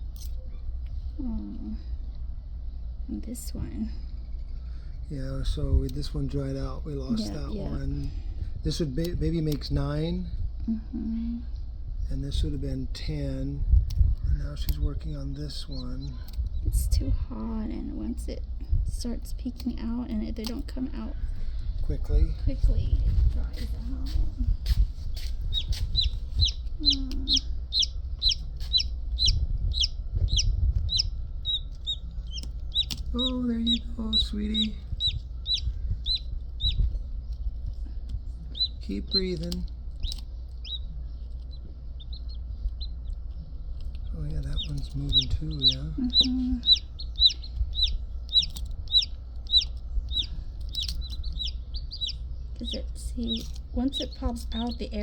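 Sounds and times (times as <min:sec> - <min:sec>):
chick peeping: 0:22.5 - 0:55.0.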